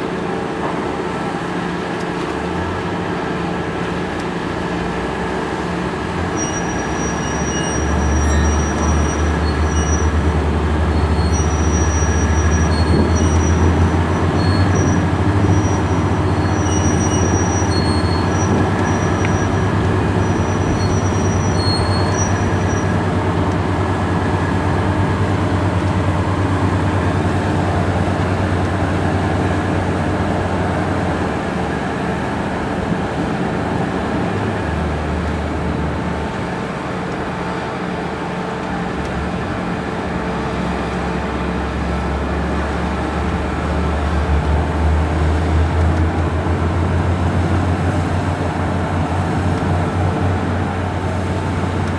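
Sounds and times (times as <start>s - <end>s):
boat engine droning: 0.0s - 51.9s
short high-pitched squeals: 6.3s - 10.2s, 10.9s - 23.0s.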